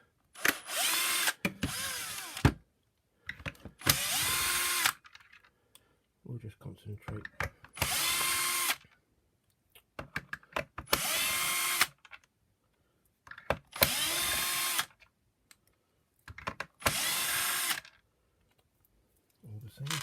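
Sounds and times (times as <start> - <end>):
cordless drill motor whining: 0.4 - 2.6, 3.8 - 5.0, 7.8 - 8.8, 10.9 - 12.0, 13.8 - 14.9, 16.8 - 17.9.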